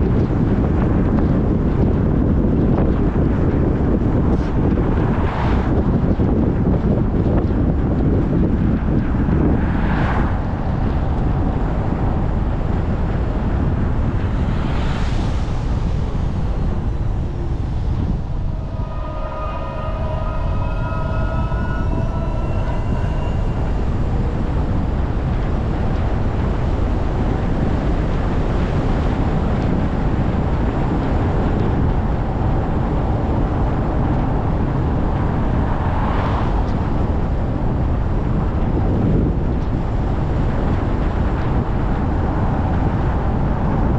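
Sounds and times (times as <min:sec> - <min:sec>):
faint steady tones: 0:14.2 - 0:27.8.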